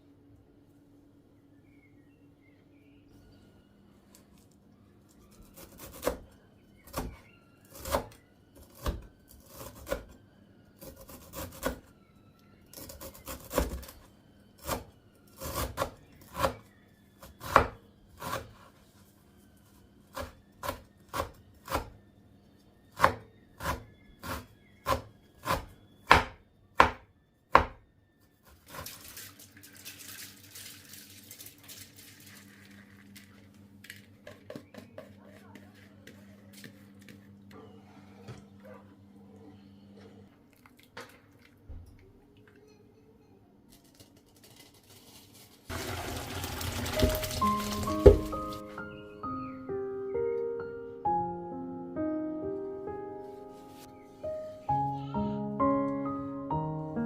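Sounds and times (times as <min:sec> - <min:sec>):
knife chopping on cutting board: 0:23.0 - 0:27.8.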